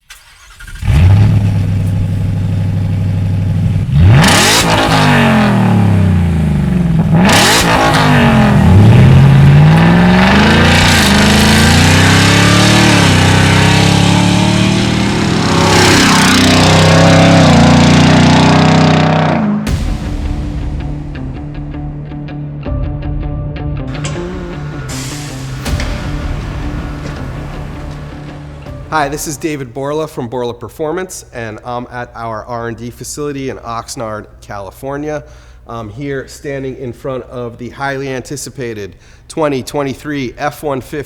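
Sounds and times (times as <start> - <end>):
truck engine starting and revving: 0.0 - 21.4, 23.9 - 29.7.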